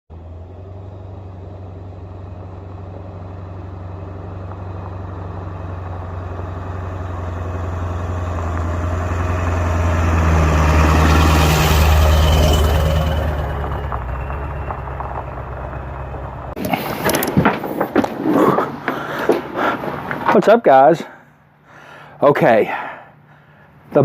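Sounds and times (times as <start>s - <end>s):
engine idling with low hum: 0.1s - 16.6s.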